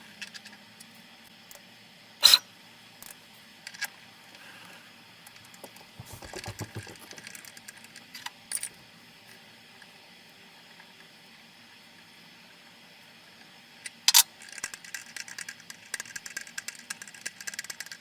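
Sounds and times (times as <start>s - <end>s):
metal parts knocking and rattling: 5.7s - 7.3s.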